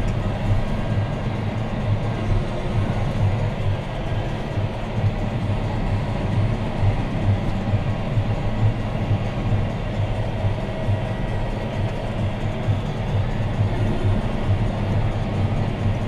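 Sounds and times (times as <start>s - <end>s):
tractor diesel engine droning: 0.0s - 16.0s.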